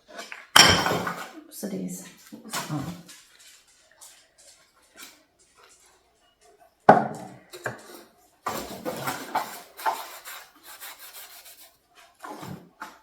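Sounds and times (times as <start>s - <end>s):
cloth scrubbing wood: 8.5s - 12.4s.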